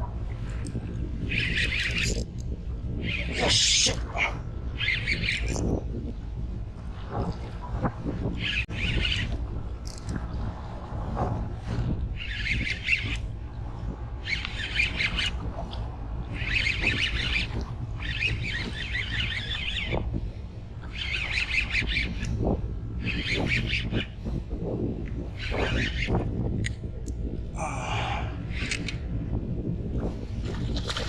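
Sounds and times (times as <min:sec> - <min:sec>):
wind rumble on microphone: 0:00.0 - 0:31.0
fishing reel buzzing: 0:00.7 - 0:02.3, 0:16.3 - 0:20.0.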